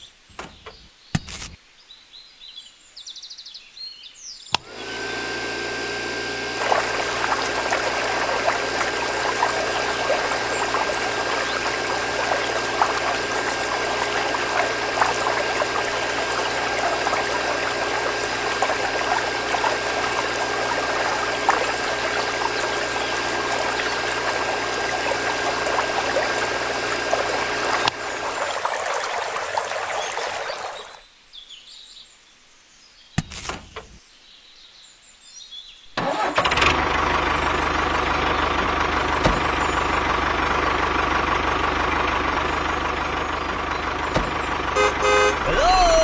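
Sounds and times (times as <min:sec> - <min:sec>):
click: 0:04.5 - 0:04.7
motor running: 0:04.6 - 0:31.0, 0:36.4 - 0:46.0.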